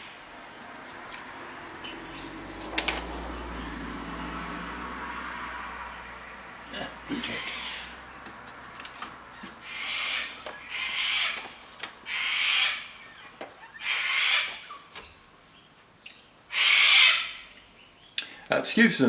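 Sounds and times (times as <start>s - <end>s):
bird harsh calls: 5.9s - 18.2s.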